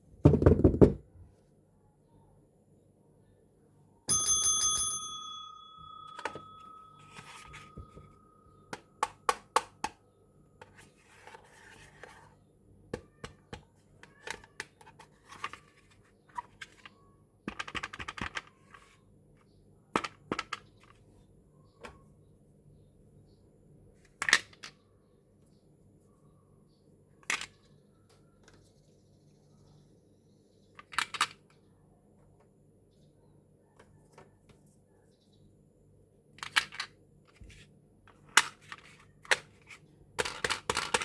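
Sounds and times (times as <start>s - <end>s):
bright bell-like ring: 4.1s - 8.7s
plastic toys clicking and tapping: 17.5s - 18.8s, 36.4s - 37.4s, 40.2s - 41.0s.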